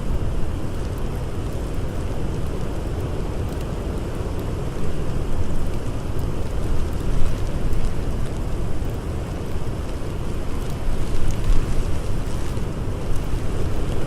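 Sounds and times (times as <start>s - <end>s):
blizzard wind blowing hard: 0.0s - 14.0s
faint campfire crackles: 0.0s - 14.0s.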